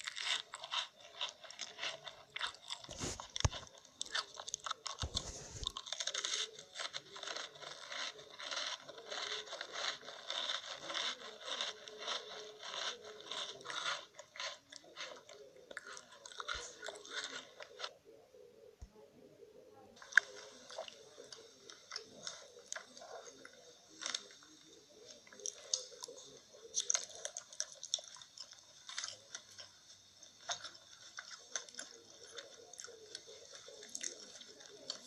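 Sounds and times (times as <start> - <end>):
crunchy chewing: 0.0 - 18.1, 20.0 - 35.0.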